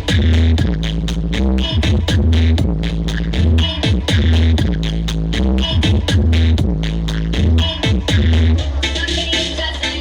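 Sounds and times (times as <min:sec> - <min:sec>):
loud electronic dance music: 0:00.0 - 0:10.0.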